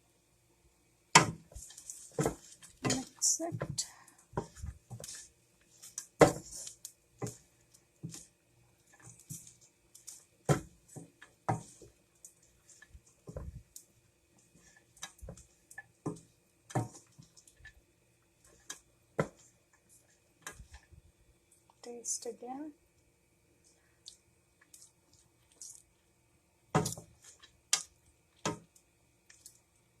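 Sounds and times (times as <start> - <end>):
spoon scraping pan: 1.2 - 13.4.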